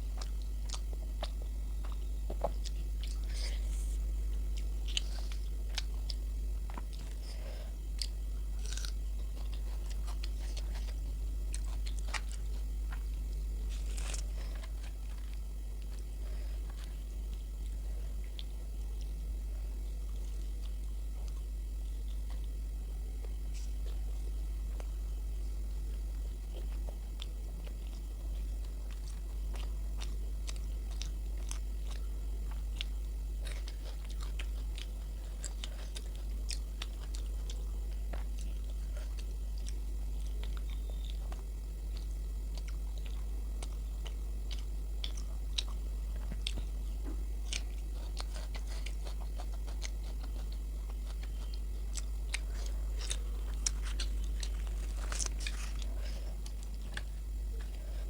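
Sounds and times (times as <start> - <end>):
steady low hum: 0.0 - 58.0
chewing with wet mouth clicks: 0.2 - 3.4, 26.2 - 57.8.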